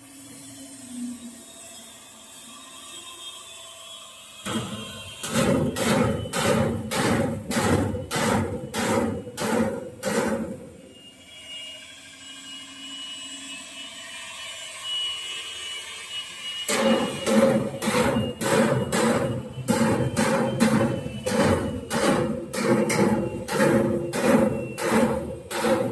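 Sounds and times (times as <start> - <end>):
hammer blows on steel: 4.5 - 10.8, 16.7 - 25.9.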